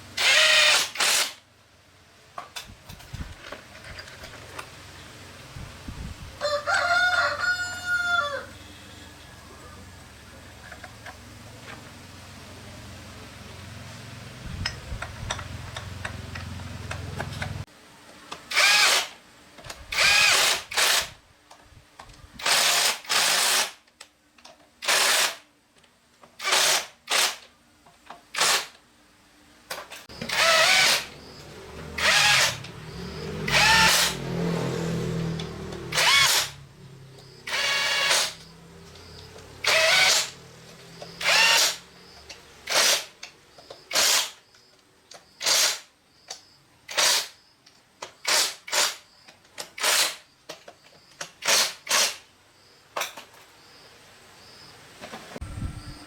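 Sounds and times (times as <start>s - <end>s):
handheld power tool bursts: 0.2s - 1.4s, 18.5s - 19.2s, 19.9s - 21.2s, 22.4s - 23.8s, 24.8s - 25.4s, 26.4s - 27.5s, 28.3s - 28.8s, 30.1s - 31.4s, 32.0s - 36.6s, 37.4s - 38.5s, 39.6s - 40.4s, 41.0s - 41.9s, 42.6s - 43.2s, 43.8s - 44.4s, 45.4s - 45.9s, 46.9s - 47.4s, 48.0s - 50.3s, 51.2s - 52.3s.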